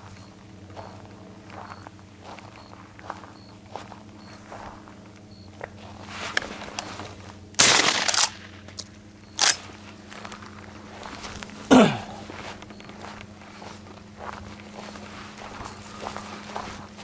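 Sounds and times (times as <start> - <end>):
rustling crunch: 0.0 - 8.7, 9.6 - 17.0
footsteps through dry brush: 0.0 - 17.0.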